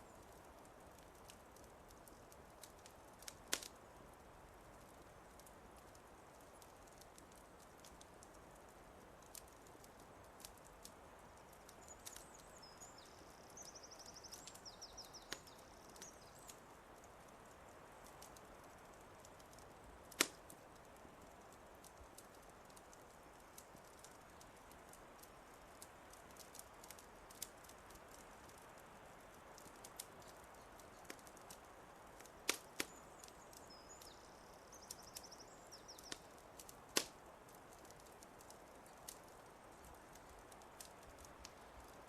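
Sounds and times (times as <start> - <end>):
soft steady hiss: 0.0 - 42.0
wood fire crackling and popping: 0.0 - 42.0.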